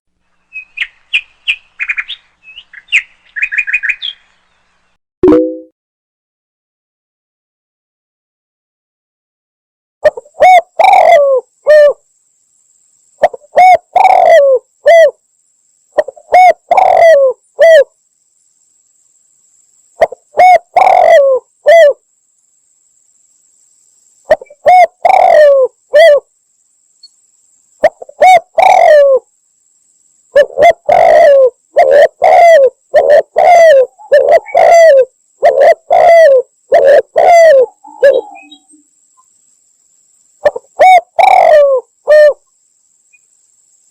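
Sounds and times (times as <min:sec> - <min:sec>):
dove cooing: 0:10.0 - 0:12.0, 0:13.2 - 0:15.2, 0:16.0 - 0:17.9, 0:20.0 - 0:22.0, 0:24.3 - 0:26.3, 0:27.8 - 0:29.2, 0:30.3 - 0:38.8, 0:40.4 - 0:42.4.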